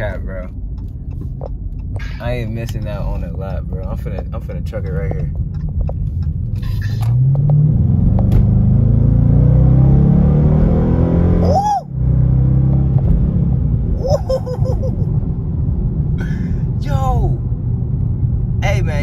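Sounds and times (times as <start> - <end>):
car engine accelerating hard: 6.0 - 19.0.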